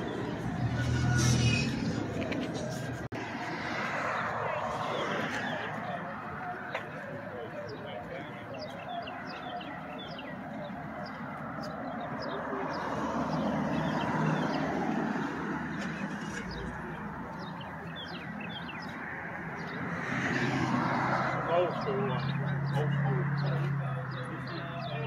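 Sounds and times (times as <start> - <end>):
outdoor background noise: 0.0 - 25.0
small birds chirping: 7.6 - 20.2.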